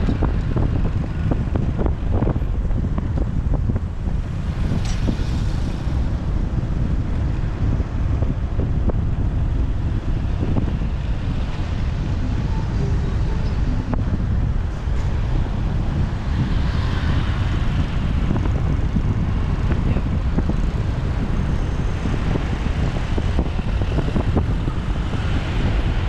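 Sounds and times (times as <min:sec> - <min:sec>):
traffic engines: 0:00.0 - 0:26.0
wind buffeting microphone: 0:00.0 - 0:26.0.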